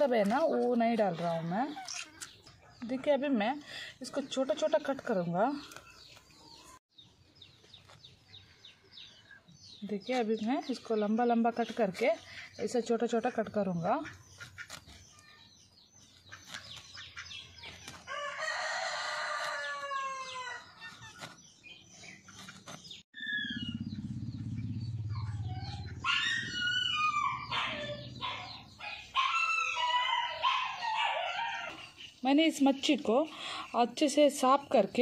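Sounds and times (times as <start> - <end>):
long pitched bird call: 23.2 - 28.1.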